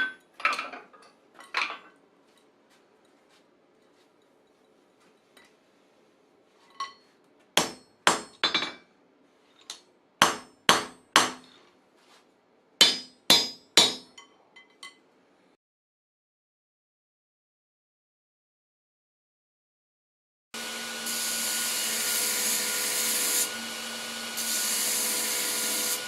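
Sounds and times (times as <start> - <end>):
hammer ringing on anvil: 12.8 - 14.1.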